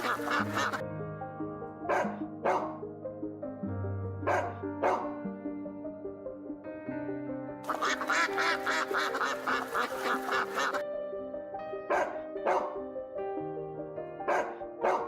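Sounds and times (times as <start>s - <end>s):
duck quacking: 0.0s - 0.8s, 7.7s - 10.8s, 11.9s - 12.7s
background music: 0.0s - 15.0s.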